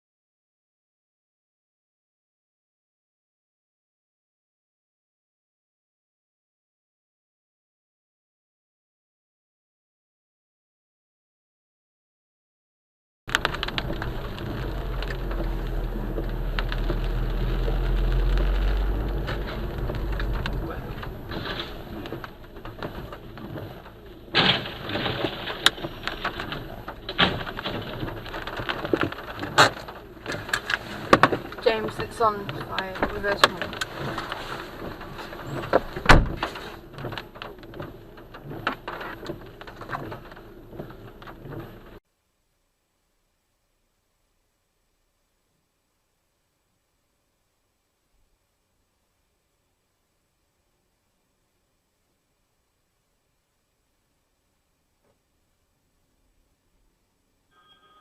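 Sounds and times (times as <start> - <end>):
vehicle rumble: 13.3 - 42.0
faint high whine: 50.6 - 58.0.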